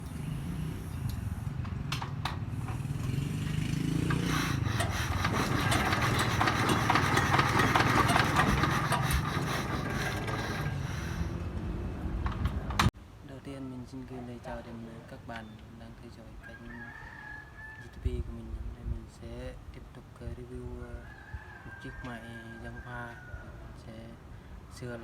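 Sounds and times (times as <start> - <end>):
engine running and revving: 0.0 - 12.9.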